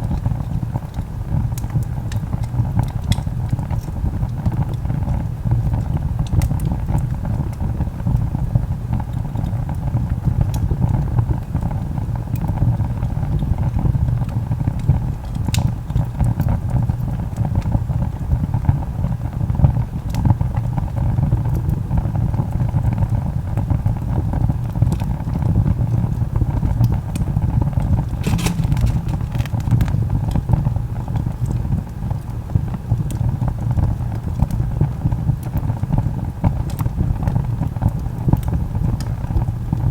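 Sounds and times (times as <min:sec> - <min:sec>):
wood fire roaring and crackling: 0:00.0 - 0:25.5, 0:26.1 - 0:39.9.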